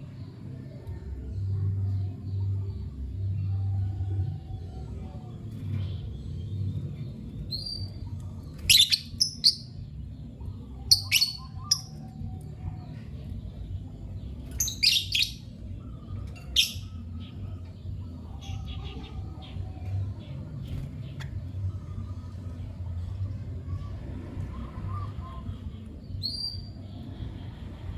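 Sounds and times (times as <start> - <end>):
low rumble: 0.0 - 27.9
lovebird shrill chirps: 10.9 - 11.9, 14.6 - 15.4.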